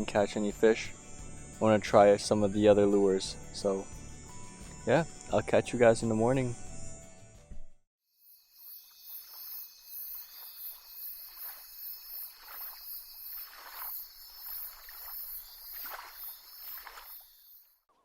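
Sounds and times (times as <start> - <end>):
insects chorusing: 0.0 - 7.0, 8.1 - 17.8
water swishes: 10.1 - 17.4.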